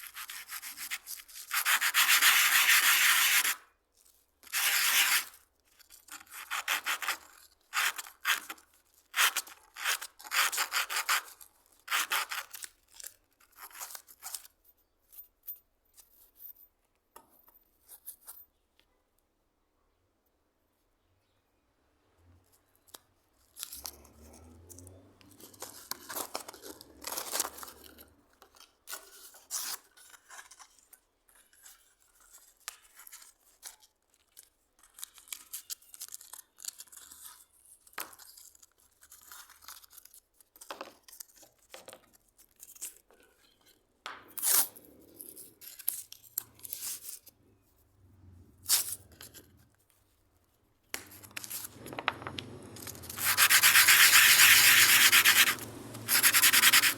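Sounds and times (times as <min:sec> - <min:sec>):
hand scraping and rasping: 0:51.0 - 0:56.9.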